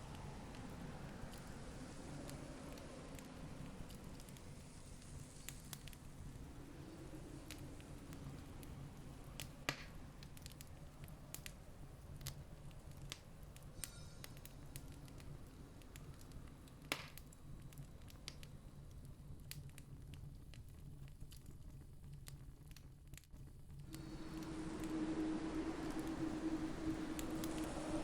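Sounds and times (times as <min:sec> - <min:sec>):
campfire crackling: 0:00.0 - 0:28.0
low steady rumble: 0:23.8 - 0:28.0.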